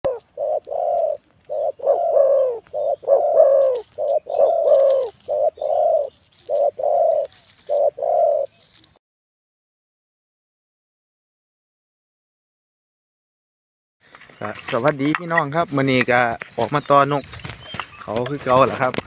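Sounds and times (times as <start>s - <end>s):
dove cooing: 0.1s - 9.0s.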